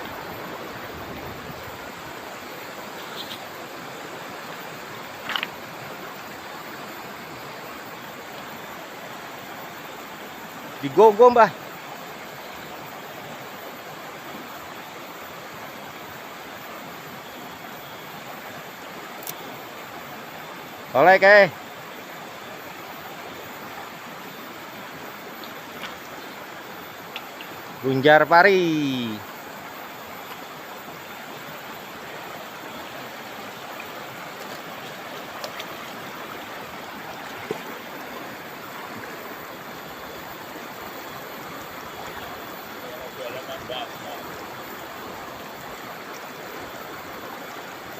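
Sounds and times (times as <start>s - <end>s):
river water rushing: 0.0s - 47.9s
faint clicks: 19.2s - 19.4s.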